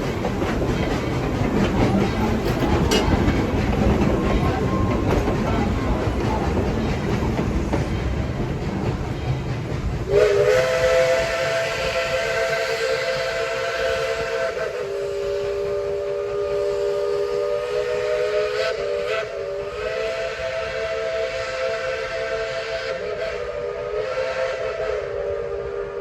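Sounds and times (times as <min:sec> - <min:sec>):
steam locomotive whistle chord: 0:10.1 - 0:26.0.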